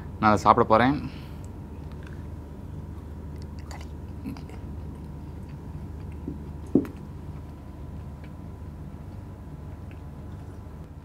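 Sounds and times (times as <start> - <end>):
low steady hum: 0.0 - 11.0
person chewing soft food: 1.4 - 10.9
wet mouth clicks: 3.3 - 7.0.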